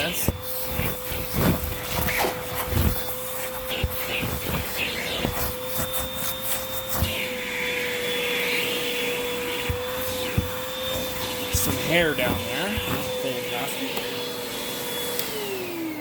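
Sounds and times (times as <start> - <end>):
vacuum cleaner motor whine: 0.0 - 16.0
hose tool knocking on sofa: 9.6 - 11.8.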